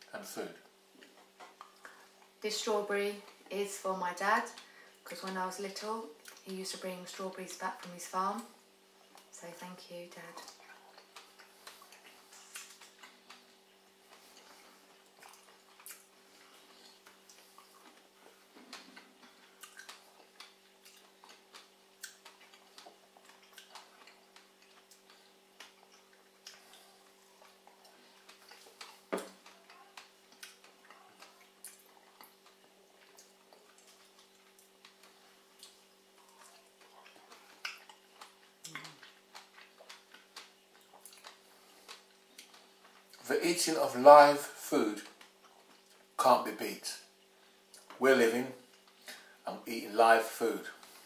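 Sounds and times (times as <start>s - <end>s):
faint steady hum: 0.0s - 51.0s
wet chewing clicks and smacks: 0.9s - 2.4s, 6.2s - 6.5s, 9.0s - 9.3s, 10.3s - 43.2s, 45.0s - 46.2s, 47.1s - 48.0s.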